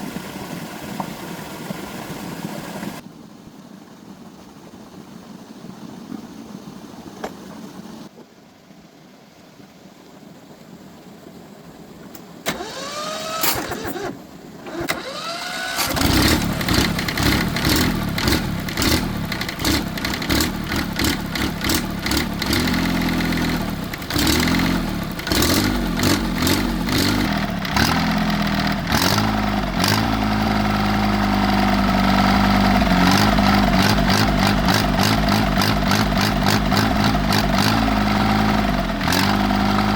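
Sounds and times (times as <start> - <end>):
tractor engine running: 12.2 - 39.9
engine cranking whine: 12.4 - 39.9.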